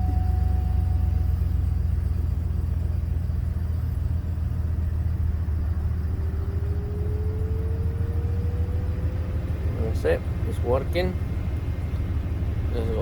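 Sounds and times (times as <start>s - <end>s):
faint whine rising in pitch: 0.0s - 9.2s
truck engine idling: 0.0s - 13.0s.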